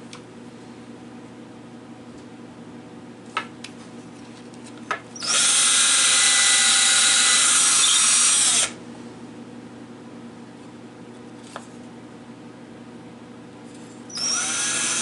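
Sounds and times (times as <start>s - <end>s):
power drill boring: 5.2s - 8.8s, 14.1s - 15.0s.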